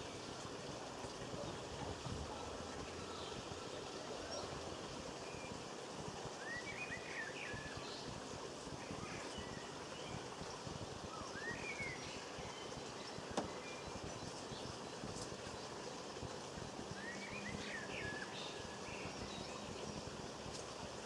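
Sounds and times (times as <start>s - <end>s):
outdoor background hiss: 0.0s - 21.0s
small birds chirping: 1.1s - 21.0s.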